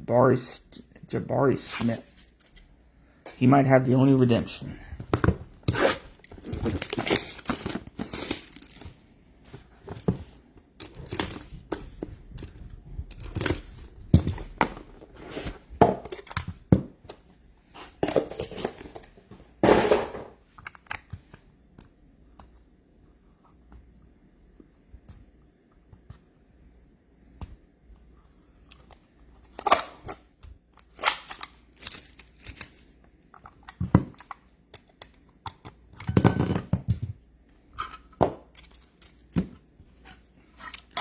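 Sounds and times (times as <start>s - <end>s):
wrapper tearing and crinkling: 5.7s - 8.9s, 30.9s - 32.9s.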